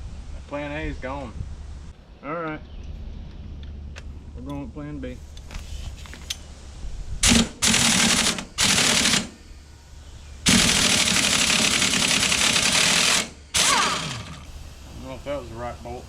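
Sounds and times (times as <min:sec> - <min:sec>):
impact wrench hammering on a bolt: 0:07.2 - 0:09.4, 0:10.5 - 0:14.4.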